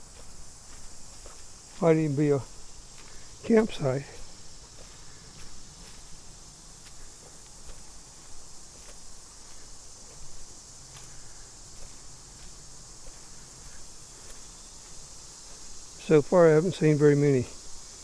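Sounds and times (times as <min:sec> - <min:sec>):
high-pitched insect drone: 0:00.0 - 0:18.0
steps through undergrowth: 0:00.0 - 0:18.0.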